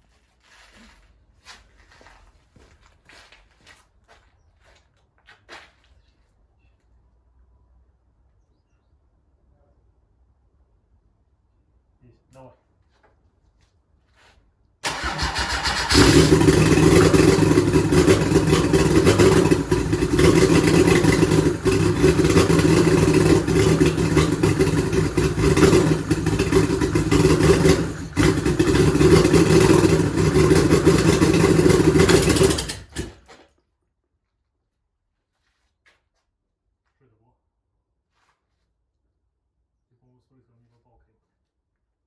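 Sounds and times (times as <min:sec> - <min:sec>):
diesel engine starting and running: 0:14.8 - 0:33.3.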